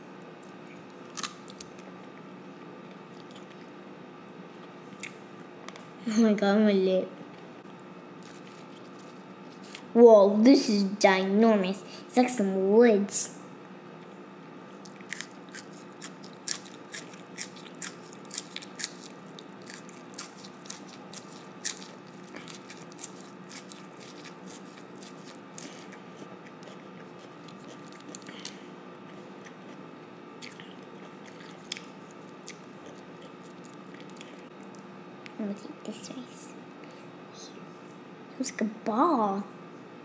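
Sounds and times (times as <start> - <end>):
child chewing salad greens: 2.9 - 3.8, 7.6 - 9.9, 14.7 - 34.9.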